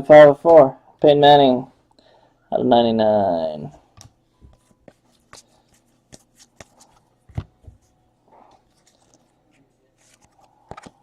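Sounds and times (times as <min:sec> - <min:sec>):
trading cards being flipped: 0:04.0 - 0:07.9, 0:08.5 - 0:11.0.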